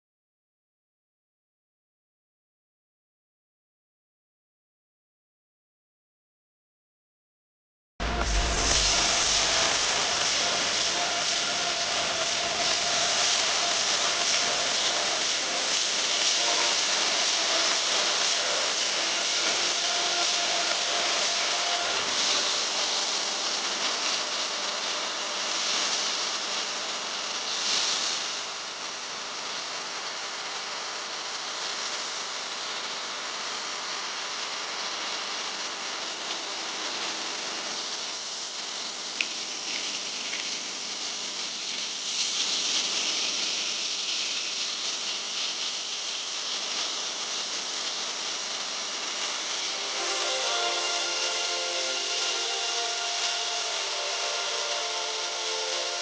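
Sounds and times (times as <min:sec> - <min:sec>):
loud steady hiss: 0:08.0 - 0:56.0.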